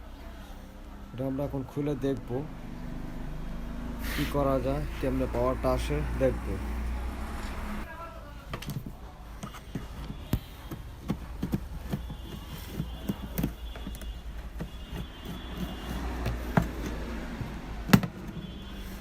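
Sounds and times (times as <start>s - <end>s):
knocks and clicks on workbench: 16.2s - 18.2s.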